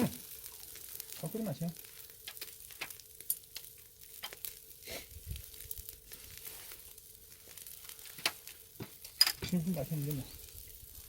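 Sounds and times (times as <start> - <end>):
meat sizzling on a grill: 0.0 - 11.0
sharp clicks and crackles: 0.0 - 11.0.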